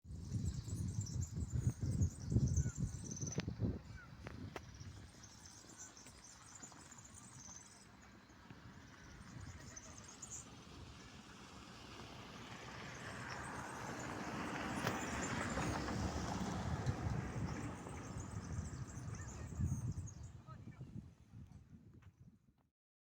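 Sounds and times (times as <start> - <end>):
wind buffeting microphone: 0.1 - 5.4, 13.7 - 22.6
vehicle approaching: 4.2 - 20.4.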